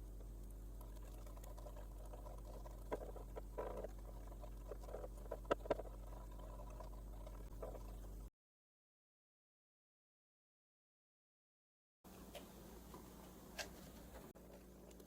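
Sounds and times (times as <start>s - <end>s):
low electrical hum: 0.0s - 8.3s, 12.1s - 15.0s.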